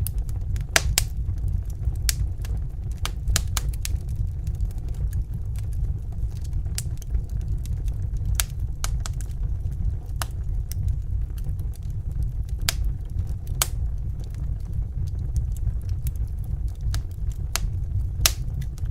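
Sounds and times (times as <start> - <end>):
fire crackling and popping: 0.0 - 18.9
low rumble of flames: 0.0 - 18.9.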